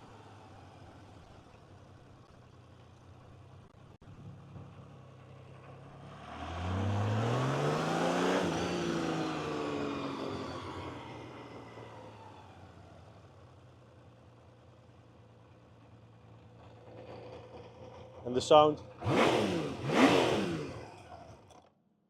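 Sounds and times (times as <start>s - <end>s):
motorcycle accelerating past: 4.7s - 12.8s, 16.6s - 21.6s.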